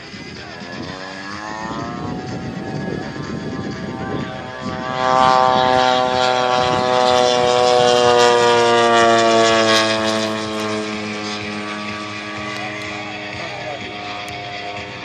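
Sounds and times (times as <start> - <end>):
model plane engine flying by: 0.0 - 15.0.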